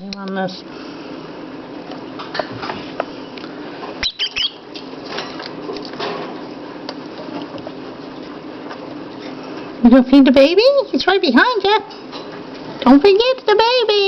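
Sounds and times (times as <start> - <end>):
bird squeaky chirps: 4.0 - 4.7.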